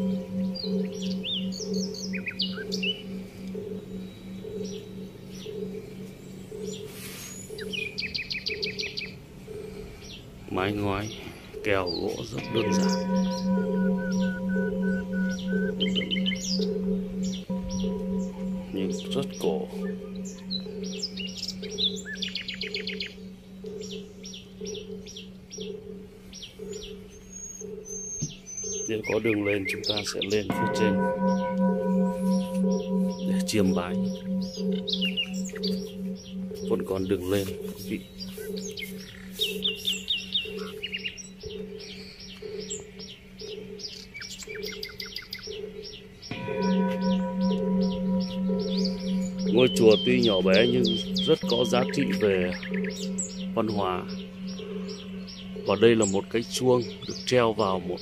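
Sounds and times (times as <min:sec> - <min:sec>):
steady low hum: 0:00.0 - 0:43.8, 0:45.6 - 0:58.0
bird trill: 0:00.0 - 0:58.0
small birds chirping: 0:00.0 - 0:58.0
thin whistled bird notes: 0:00.0 - 0:58.0.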